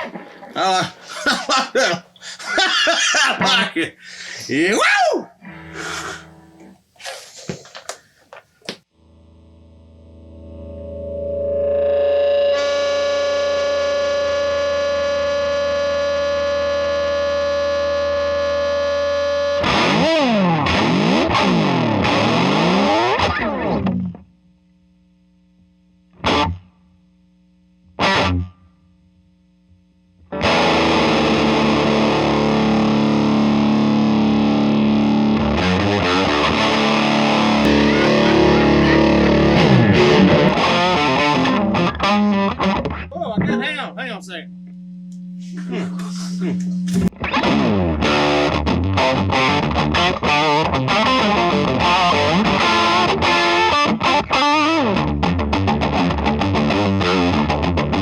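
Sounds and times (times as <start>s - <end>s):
faint amp hum: 0.0s - 19.4s, 20.5s - 56.5s
overdriven electric guitar: 5.4s - 6.8s, 9.0s - 24.3s, 26.1s - 26.7s, 27.8s - 28.6s, 30.2s - 58.0s.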